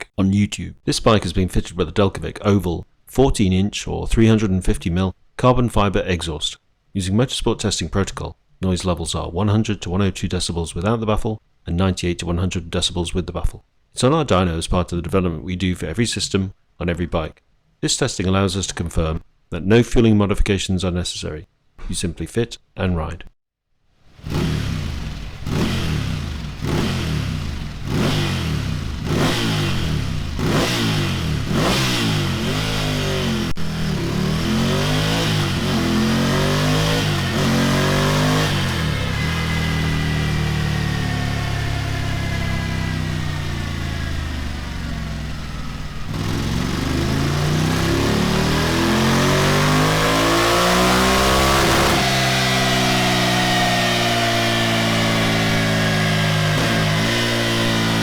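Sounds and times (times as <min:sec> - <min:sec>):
motorcycle engine revving: 0:24.1 - 0:58.0.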